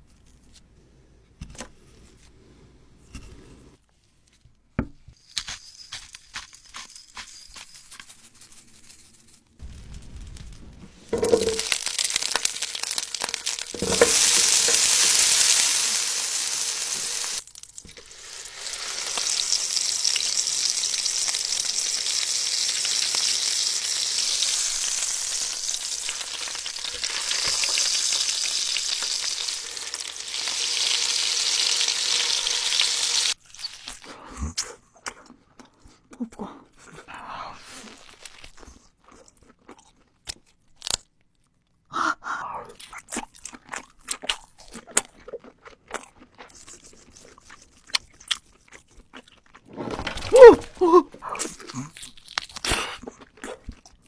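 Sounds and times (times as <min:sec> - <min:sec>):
food sizzling in hot oil: 0:09.6 - 0:34.0.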